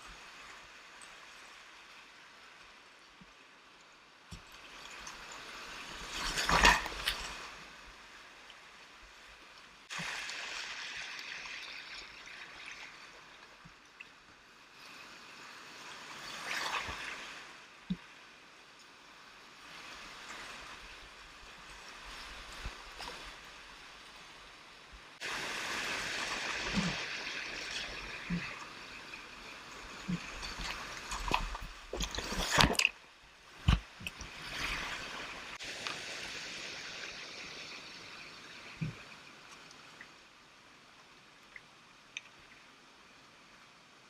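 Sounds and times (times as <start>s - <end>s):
water splashing: 4.3s - 7.8s, 9.8s - 14.2s, 16.0s - 18.1s, 25.2s - 40.1s.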